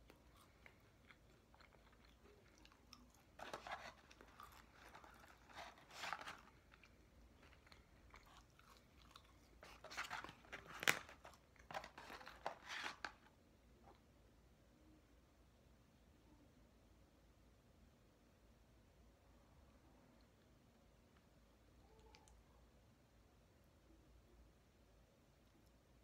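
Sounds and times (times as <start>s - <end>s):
person chewing crunchy fries: 0.0s - 12.4s.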